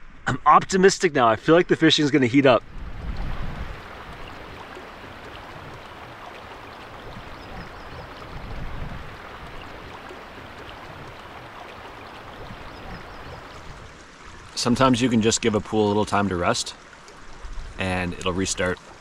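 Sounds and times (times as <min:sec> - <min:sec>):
river water rushing: 0:02.6 - 0:14.8.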